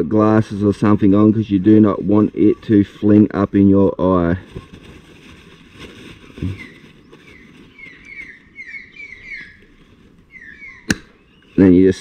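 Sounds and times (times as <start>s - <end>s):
handling noise: 4.4s - 11.8s
bird chirping: 6.2s - 12.0s.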